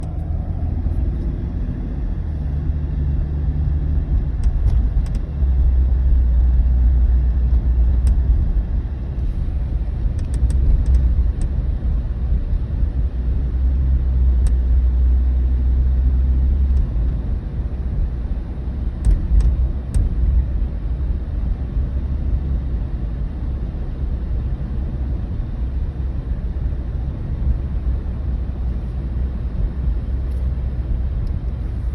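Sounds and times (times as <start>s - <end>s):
vehicle cabin rumble: 0.0s - 31.9s
faint clicks from dashboard: 4.1s - 5.4s, 7.2s - 8.4s, 10.0s - 11.6s, 14.4s - 14.6s, 16.6s - 17.2s, 19.0s - 20.3s, 30.2s - 30.6s.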